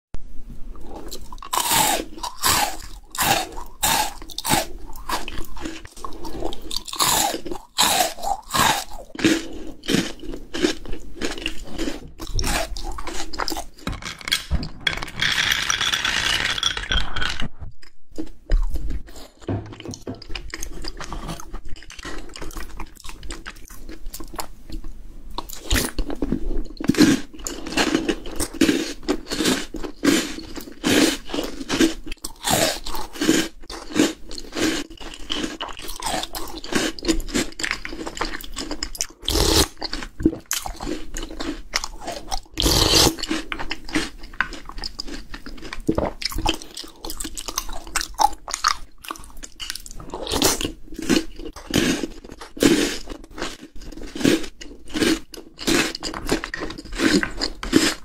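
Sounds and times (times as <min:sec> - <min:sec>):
chocolate balls crunching: 0:00.8 - 0:24.8, 0:25.4 - 0:58.0
sharp biting cracks: 0:01.4 - 0:05.8, 0:06.7 - 0:10.8
balls rattling as poured: 0:13.4 - 0:17.6.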